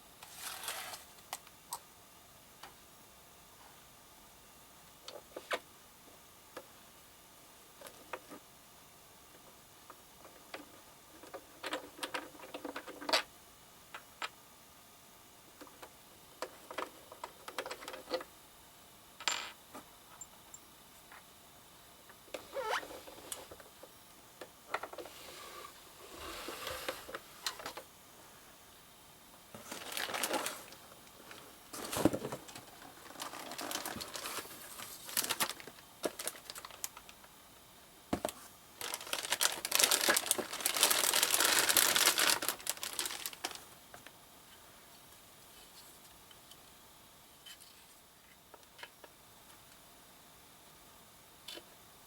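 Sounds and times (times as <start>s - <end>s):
paper or plastic crinkling: 0.2s - 1.1s, 29.6s - 37.1s, 38.3s - 43.7s.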